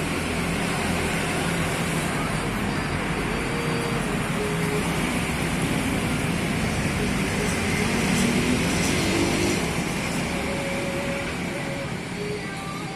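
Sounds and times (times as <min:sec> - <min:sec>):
steady background rumble and hiss: 0:09.6 - 0:12.9.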